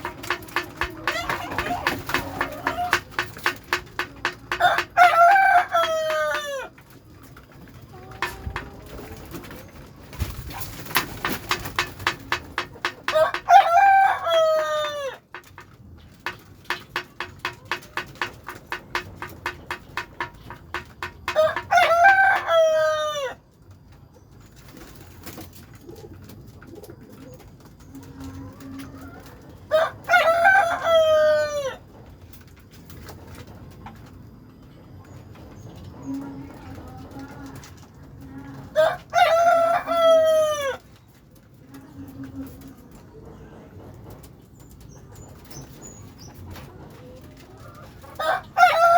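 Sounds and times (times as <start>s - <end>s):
rooster crowing: 4.5s - 6.7s, 13.1s - 15.2s, 21.3s - 23.4s, 29.7s - 31.8s, 38.8s - 40.8s, 48.2s - 48.9s.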